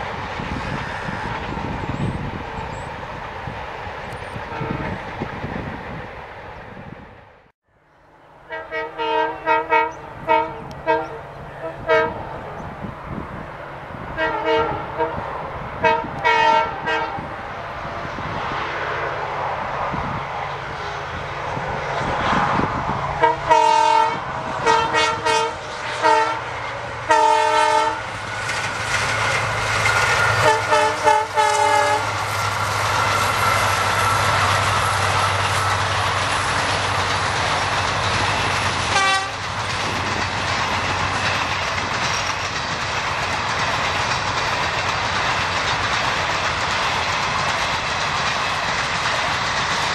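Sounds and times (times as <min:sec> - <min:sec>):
train passing roar: 0:00.0 - 0:49.9
locomotive horn blasts: 0:04.4 - 0:05.0, 0:08.4 - 0:12.4, 0:14.2 - 0:17.3, 0:23.1 - 0:28.1, 0:30.4 - 0:32.2, 0:38.8 - 0:39.5.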